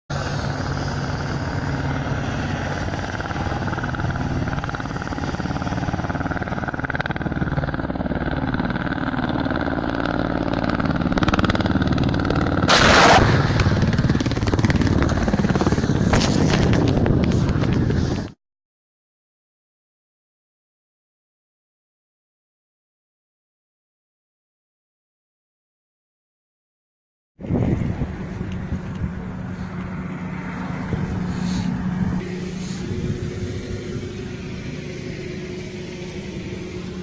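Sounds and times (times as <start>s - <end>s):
helicopter rotors and turbines: 0.1s - 18.4s, 27.4s - 37.0s
rocket salvo rushing burst: 12.7s - 13.9s.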